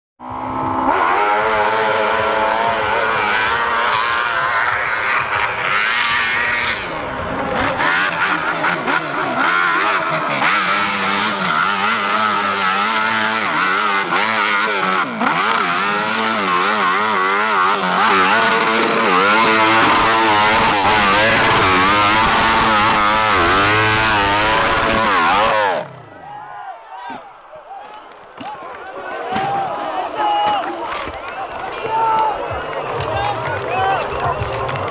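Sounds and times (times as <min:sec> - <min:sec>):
motorcycle engine revving hard: 0:00.2 - 0:26.2.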